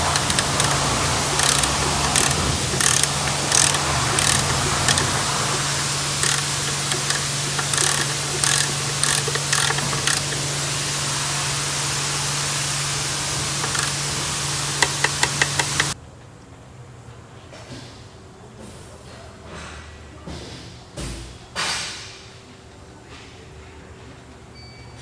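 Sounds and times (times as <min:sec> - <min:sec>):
ratchet wrench clicking: 0:00.0 - 0:10.7, 0:13.0 - 0:16.0
steady low hum: 0:00.0 - 0:16.0.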